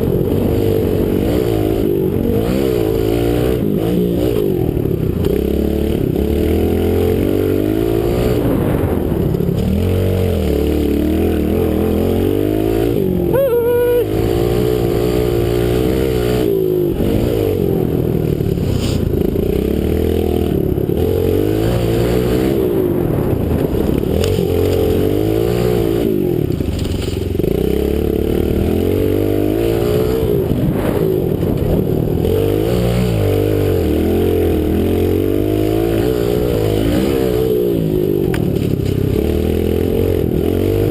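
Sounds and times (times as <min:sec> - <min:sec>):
motorbike engine revving: 0:00.0 - 0:40.9.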